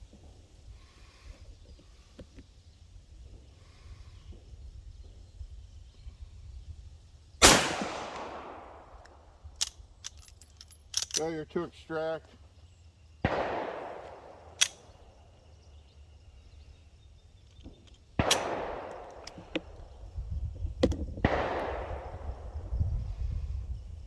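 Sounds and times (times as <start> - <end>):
pistol shots echoing: 7.4 - 9.1, 13.2 - 15.2, 18.2 - 19.8, 21.2 - 22.6
sharp click: 14.6 - 14.9.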